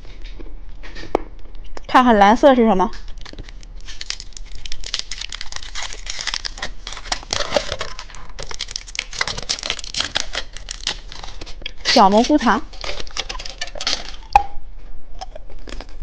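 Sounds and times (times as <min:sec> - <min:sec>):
candy wrapper crinkling: 0:02.9 - 0:14.5.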